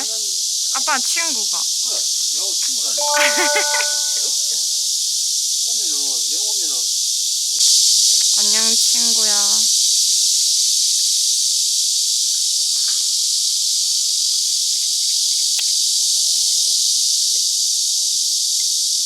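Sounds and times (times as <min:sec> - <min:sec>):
cicadas singing in chorus: 0:00.0 - 0:19.0.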